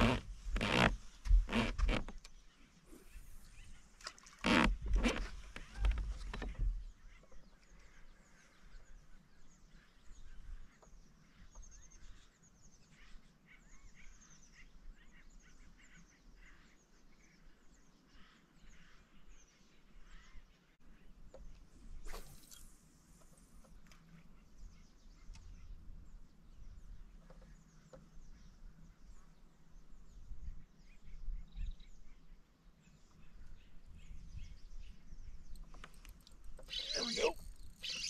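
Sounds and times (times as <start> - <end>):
low thumps and rustles: 0.0 - 2.2
small birds chirping: 5.5 - 38.0.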